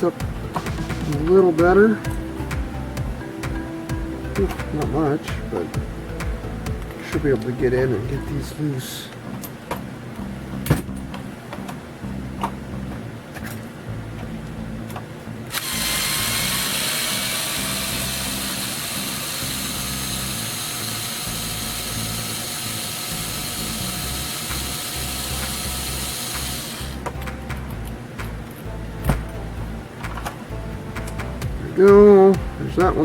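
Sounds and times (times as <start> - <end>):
handheld power driver running: 15.5 - 27.0.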